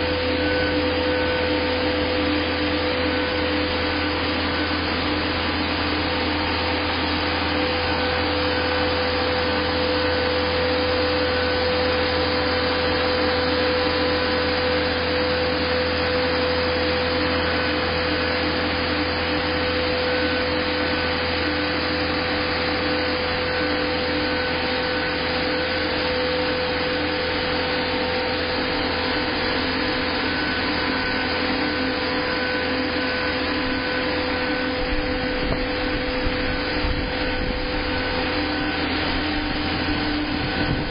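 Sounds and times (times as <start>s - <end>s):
machine hum: 0.0s - 40.9s
steady machine whine: 0.0s - 40.9s.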